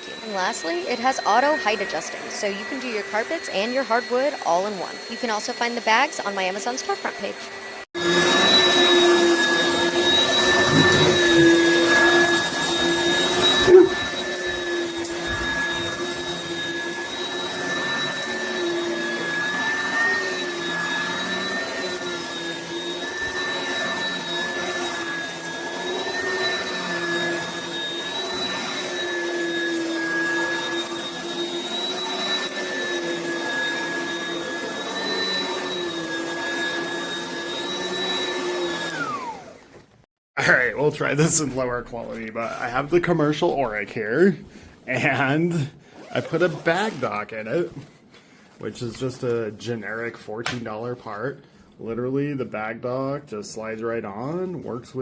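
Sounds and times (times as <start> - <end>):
vacuum cleaner motor whine: 0.0 - 40.0.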